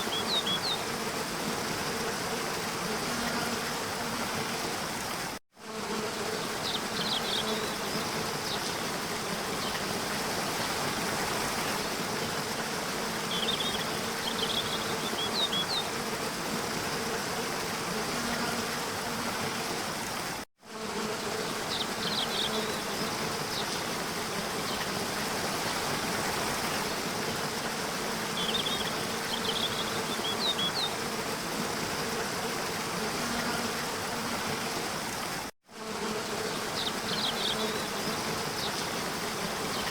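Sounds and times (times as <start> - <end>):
falling water rushing: 23.2 - 29.2.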